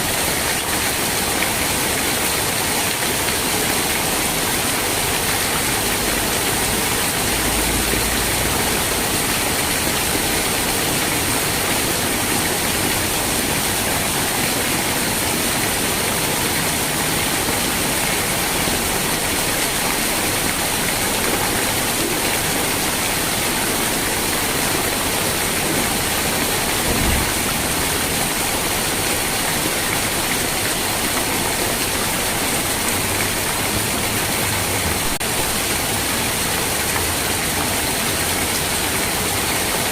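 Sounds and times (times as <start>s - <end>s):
rain falling: 0.0s - 39.9s
low thump: 26.8s - 27.7s.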